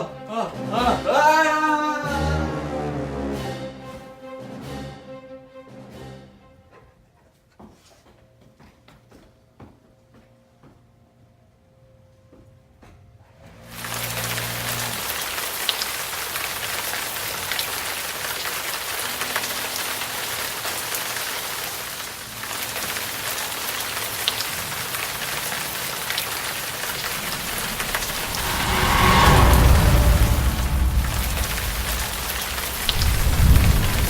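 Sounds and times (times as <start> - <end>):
heavy rain pouring: 13.7 - 34.0
rumble of thunder: 26.0 - 34.0.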